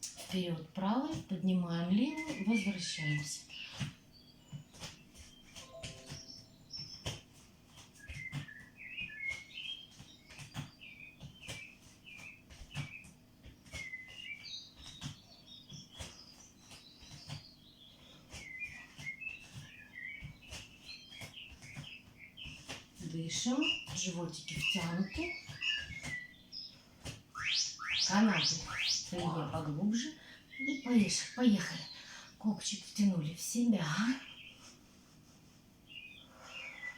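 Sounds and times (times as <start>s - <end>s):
small bird chirping: 2.1s - 31.9s
footsteps on floor: 2.2s - 30.0s.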